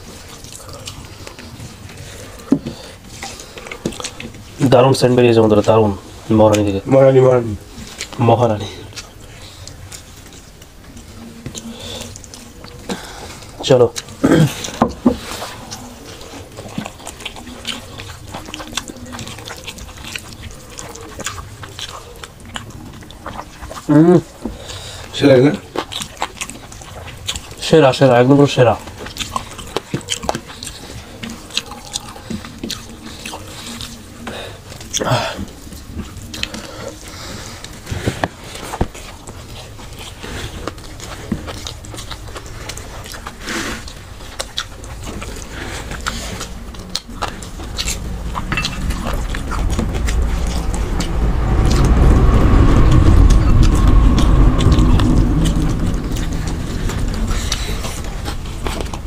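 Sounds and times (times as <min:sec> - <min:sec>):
wet chewing and lip-smacking: 0:00.0 - 0:06.8, 0:07.6 - 0:52.0
low rumble: 0:44.7 - 0:59.0.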